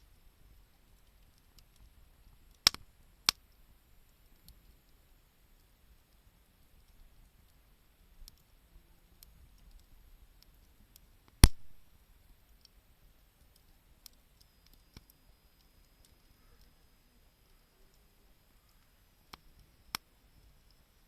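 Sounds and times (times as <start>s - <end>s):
campfire crackling: 0.0s - 21.0s
loud campfire pop: 2.5s - 3.6s, 11.3s - 11.9s.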